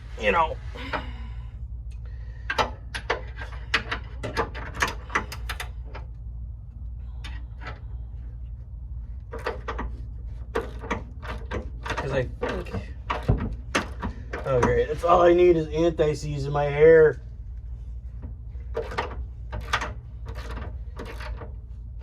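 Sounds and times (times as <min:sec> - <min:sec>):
low hum: 0:00.0 - 0:22.0
hand tools clicking and knocking: 0:09.2 - 0:15.4, 0:18.2 - 0:21.6.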